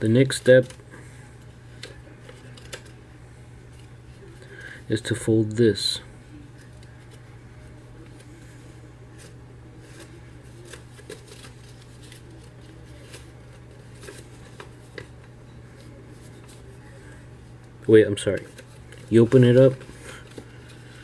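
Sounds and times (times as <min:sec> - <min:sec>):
steady low hum: 0:00.0 - 0:21.0
paper being folded and creased: 0:09.1 - 0:17.0.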